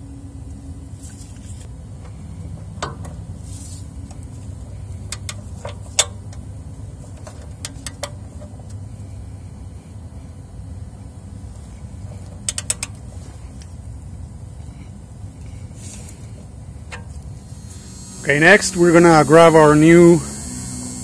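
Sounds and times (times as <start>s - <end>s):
steady low hum: 0.0s - 21.0s
wrench clicking on metal: 5.0s - 6.4s, 12.4s - 13.0s.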